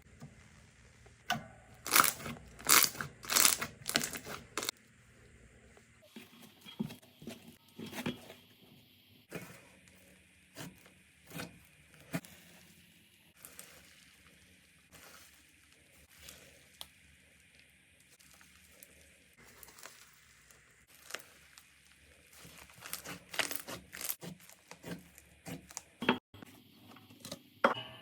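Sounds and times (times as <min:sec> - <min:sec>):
slime squeezed crackling: 0:18.1 - 0:25.9.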